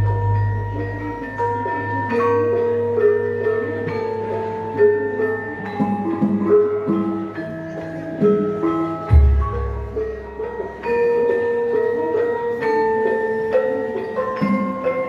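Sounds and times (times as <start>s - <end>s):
metallophone keys struck: 0.0s - 4.3s, 5.3s - 12.6s.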